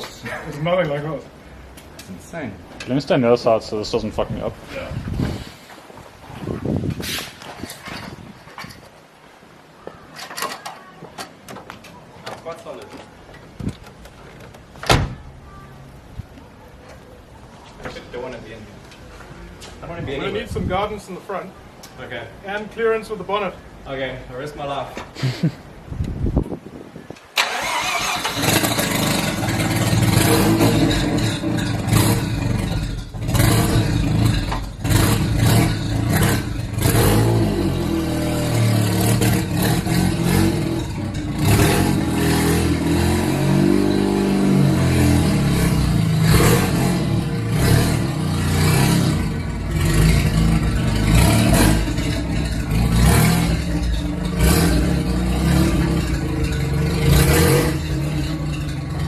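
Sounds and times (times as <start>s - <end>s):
exhaust cracks and pops: 11.3s - 15.0s, 27.2s - 42.8s, 47.6s - 59.0s
rotary engine revving: 27.4s - 59.0s.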